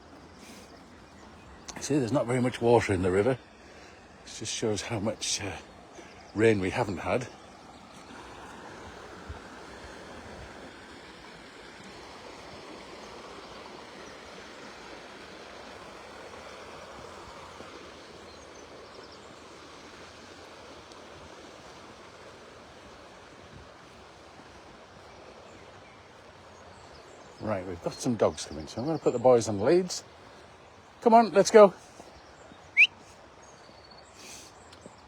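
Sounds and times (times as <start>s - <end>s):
river water rushing over stones: 0.0s - 28.2s.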